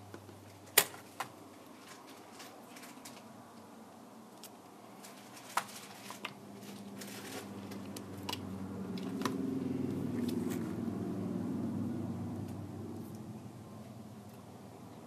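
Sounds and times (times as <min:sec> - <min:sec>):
low hum: 0:06.5 - 0:15.0.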